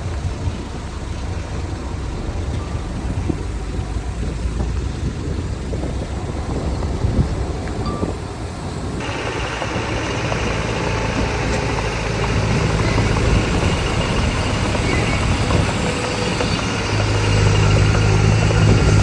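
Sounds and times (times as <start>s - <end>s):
diesel earthmoving machinery running: 0.0s - 19.0s
harsh high-pitched mechanical noise: 9.0s - 19.0s.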